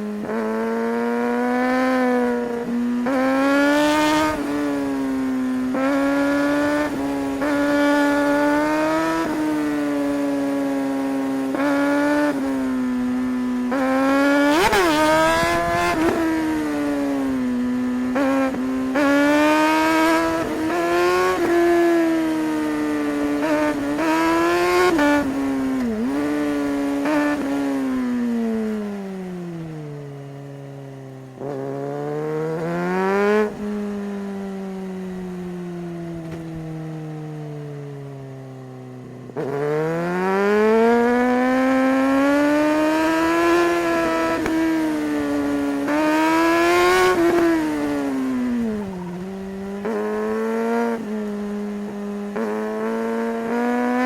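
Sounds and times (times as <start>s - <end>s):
motorcycle engine revving and shifting: 0.0s - 54.0s.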